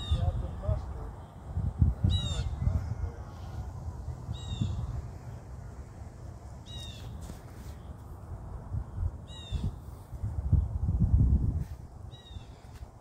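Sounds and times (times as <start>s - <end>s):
wind rumble on microphone: 0.0s - 13.0s
bird harsh calls: 2.0s - 3.6s, 4.3s - 4.9s, 6.6s - 7.2s, 9.3s - 9.8s.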